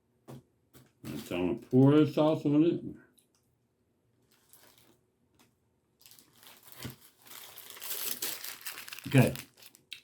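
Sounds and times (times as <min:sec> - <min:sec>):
food packaging crinkling: 0:04.2 - 0:10.0.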